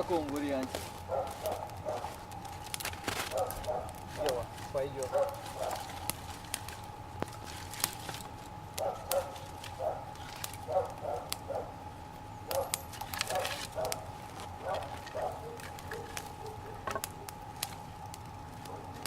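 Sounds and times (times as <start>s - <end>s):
small fire crackling: 0.0s - 19.0s
dog barking: 1.1s - 2.2s, 3.3s - 4.0s, 5.0s - 5.8s, 8.8s - 10.1s, 10.7s - 11.8s, 12.5s - 16.9s, 18.6s - 19.0s.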